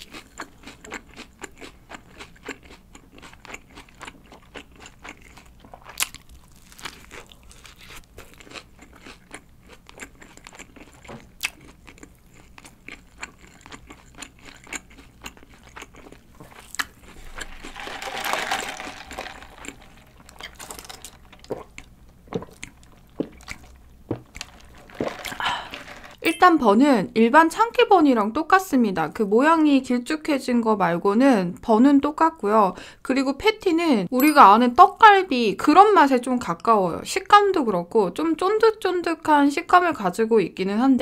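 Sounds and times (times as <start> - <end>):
biting and chewing burger: 0.0 - 17.7.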